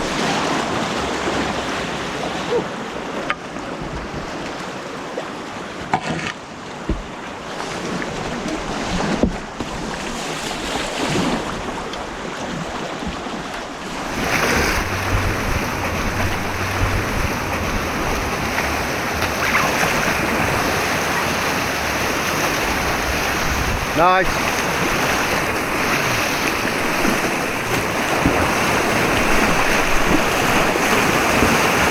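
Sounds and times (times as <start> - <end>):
rushing white water: 0.0 - 5.7, 6.4 - 31.9
sharp knocks: 14.0 - 20.4.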